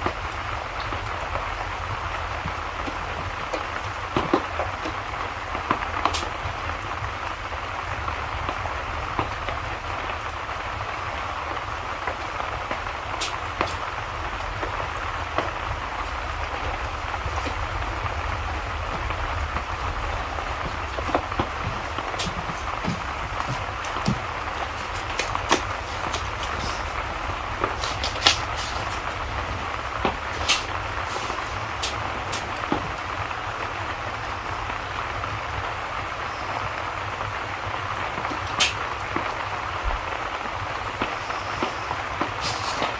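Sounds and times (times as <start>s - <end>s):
low constant rumble: 0.0s - 42.9s
steady rain: 0.0s - 42.9s
wood fire crackling pops: 0.0s - 42.9s.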